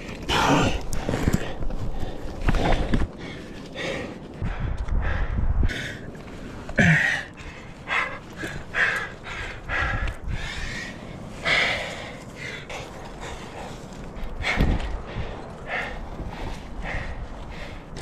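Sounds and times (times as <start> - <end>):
person panting heavily: 0.2 - 18.0.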